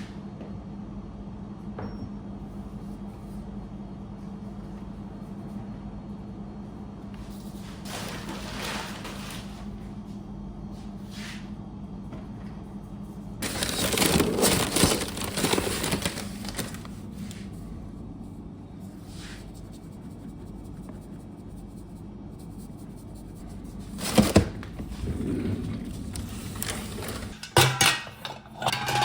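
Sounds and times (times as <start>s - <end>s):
steady low hum: 9.5s - 29.0s
material crinkling and rustling: 13.4s - 17.4s.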